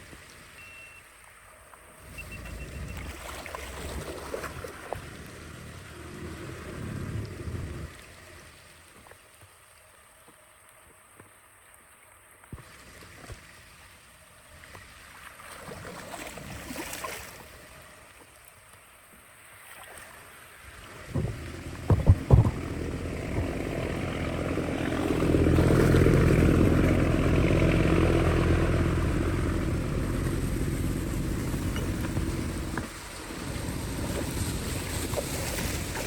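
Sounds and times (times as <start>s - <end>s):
water rushing and gushing: 0.0s - 11.2s, 12.1s - 36.0s
sharp knocks: 21.1s - 23.7s.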